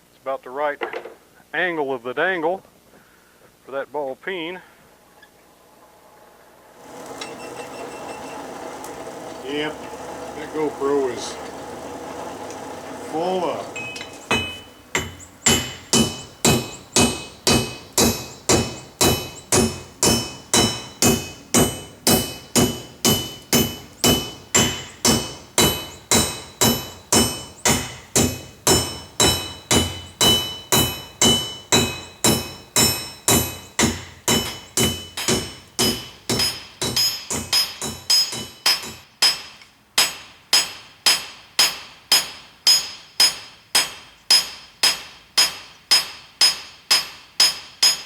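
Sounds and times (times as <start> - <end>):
hammer striking steel with metallic ring: 13.8 - 48.0.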